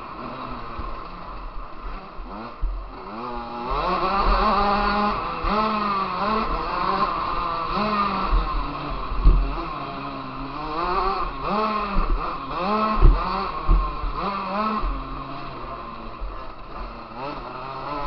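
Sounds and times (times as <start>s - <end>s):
motocross bike engine revving: 0.0s - 18.0s
dull thumps: 8.3s - 9.7s, 13.0s - 14.2s.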